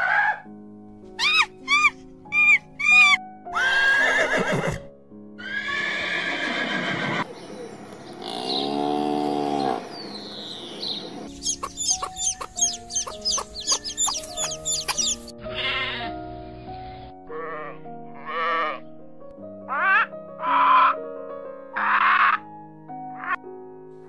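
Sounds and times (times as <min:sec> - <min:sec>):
background music: 0:00.0 - 0:24.0
horse neighing: 0:02.5 - 0:07.3
quick high chirps: 0:11.3 - 0:15.3.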